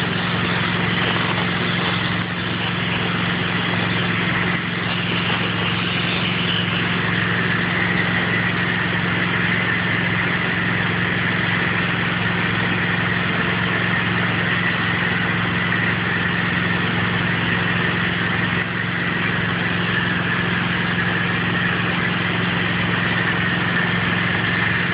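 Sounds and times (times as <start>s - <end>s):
high-pressure spray hissing: 0.0s - 8.3s
pressure washer engine running: 0.0s - 24.9s.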